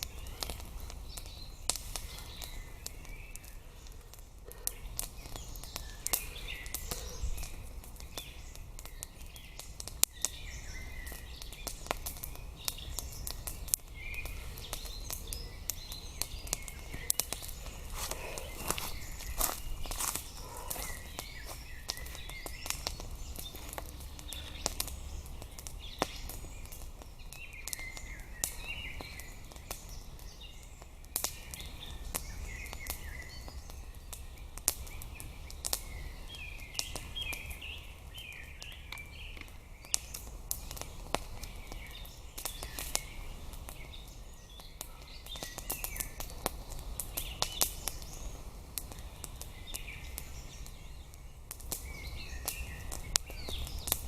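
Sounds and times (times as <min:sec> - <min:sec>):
songbirds chirping: 0:00.0 - 0:54.0
sharp clicks and snaps: 0:51.5 - 0:54.0.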